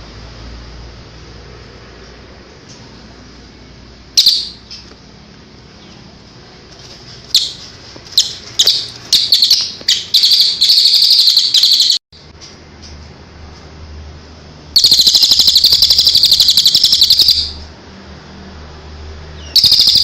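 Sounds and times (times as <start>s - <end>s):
rapid bird trill: 4.2s - 4.9s, 7.3s - 12.0s, 14.8s - 17.7s, 19.4s - 20.0s
songbird singing: 4.2s - 5.0s, 7.3s - 12.0s, 14.8s - 17.7s, 19.4s - 20.0s.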